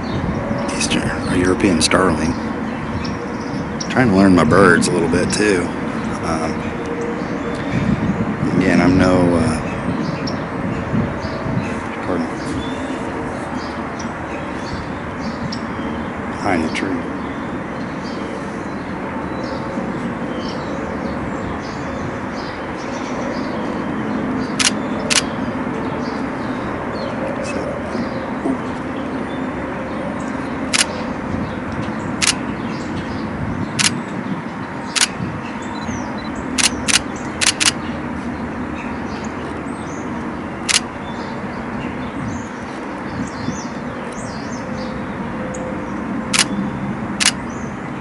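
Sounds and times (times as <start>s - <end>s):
steady background hum: 0.0s - 48.0s
camera shutter clicks: 24.6s - 25.3s, 36.6s - 37.8s, 47.2s - 47.4s.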